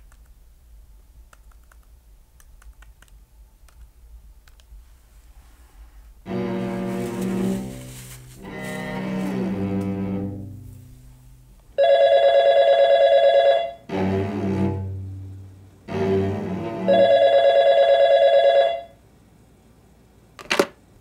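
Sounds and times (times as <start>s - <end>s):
bowed cello notes: 6.2s - 11.6s, 13.8s - 17.0s
telephone ringing: 11.8s - 13.8s, 16.9s - 19.0s.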